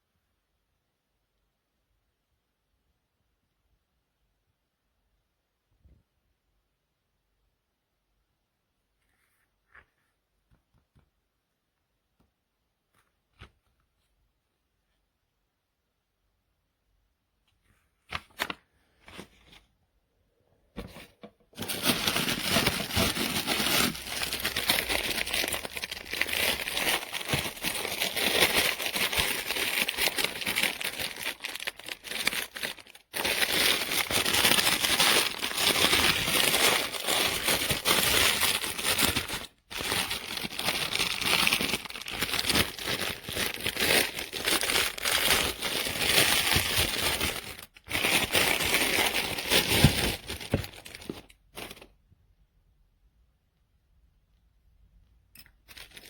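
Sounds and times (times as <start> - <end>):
packaging crinkling and rustling: 20.8 - 52.0, 55.6 - 56.0
packaging clicks: 21.6 - 51.8.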